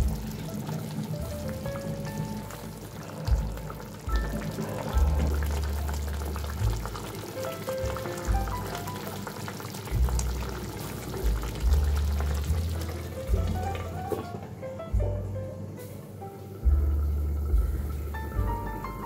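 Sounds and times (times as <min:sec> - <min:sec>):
food sizzling in hot oil: 0:00.0 - 0:14.2
background music with deep bass: 0:00.0 - 0:19.0.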